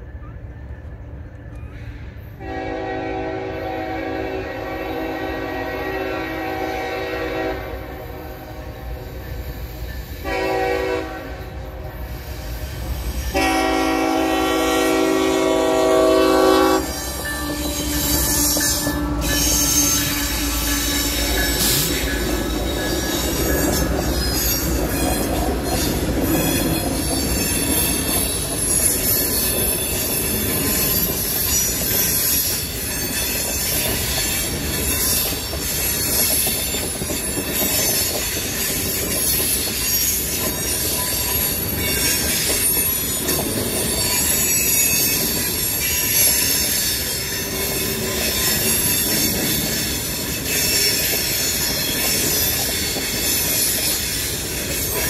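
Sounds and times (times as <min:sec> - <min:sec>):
locomotive horn blasts: 0:02.4 - 0:09.0, 0:10.2 - 0:11.7, 0:13.3 - 0:23.9
high wheel squeal: 0:16.1 - 0:55.0.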